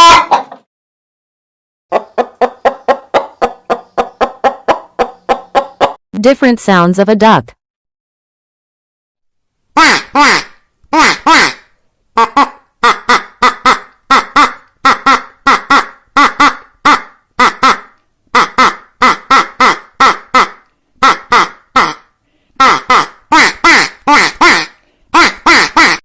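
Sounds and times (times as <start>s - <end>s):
ducks quacking: 0.0s - 0.6s, 9.8s - 22.0s, 22.6s - 26.0s.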